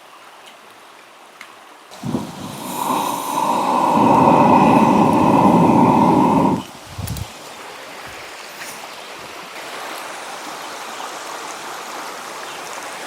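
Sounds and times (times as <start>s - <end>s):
stove burner flame rushing: 1.9s - 7.4s.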